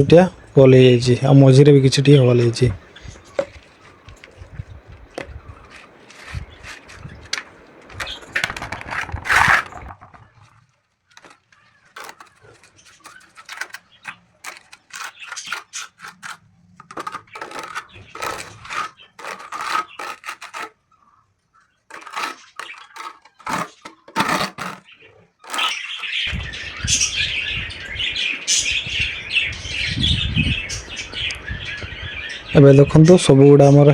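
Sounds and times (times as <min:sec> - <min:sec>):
cement scraping and tapping: 0:02.3 - 0:10.5, 0:11.2 - 0:20.7, 0:21.9 - 0:24.8.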